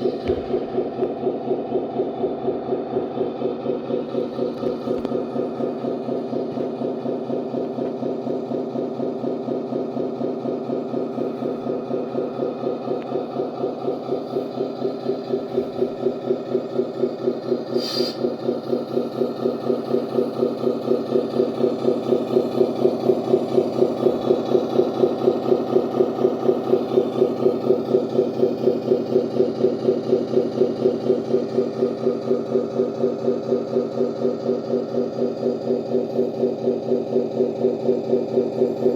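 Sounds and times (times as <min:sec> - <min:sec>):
simulated truck engine idling: 0:00.0 - 0:38.9
short hiss: 0:17.7 - 0:18.2.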